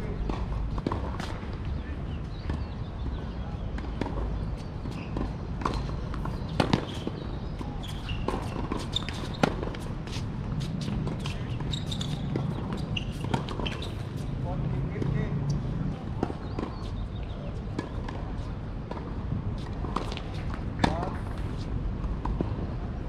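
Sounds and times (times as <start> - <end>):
tennis balls struck by rackets: 0.0 - 22.7
outdoor background noise: 0.0 - 23.0
balls bouncing on hard court: 2.4 - 14.2, 19.8 - 21.4.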